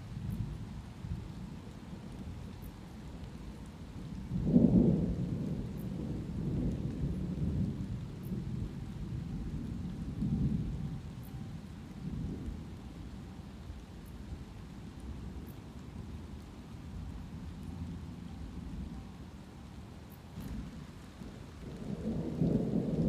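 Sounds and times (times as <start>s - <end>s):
light rain: 0.0s - 23.0s
thunder rumbling: 0.1s - 23.0s.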